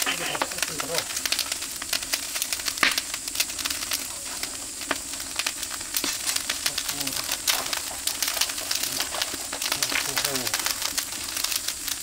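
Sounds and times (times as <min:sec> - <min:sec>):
meat sizzling on a grill: 0:00.0 - 0:12.0
wood fire crackling and popping: 0:00.0 - 0:12.0.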